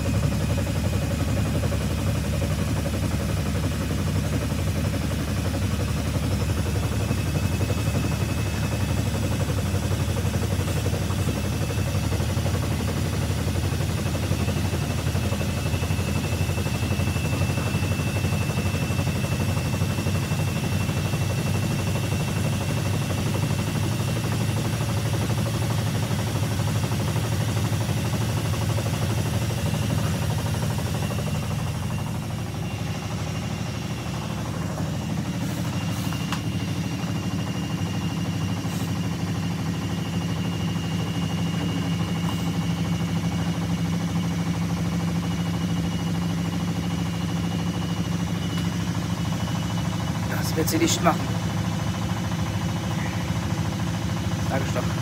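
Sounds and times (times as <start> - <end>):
washing machine motor hum: 0.0 - 55.0
high whine: 28.1 - 51.3.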